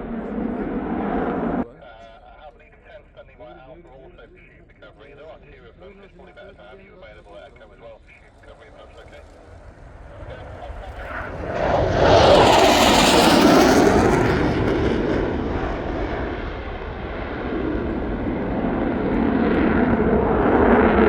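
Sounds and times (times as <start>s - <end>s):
aircraft engine flypast: 0.0s - 1.6s, 6.3s - 21.0s.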